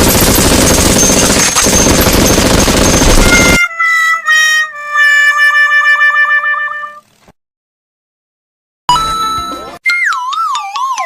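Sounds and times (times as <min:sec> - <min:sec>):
loud dense rattling: 0:00.0 - 0:03.6
whistle-like descending tune: 0:08.9 - 0:11.0.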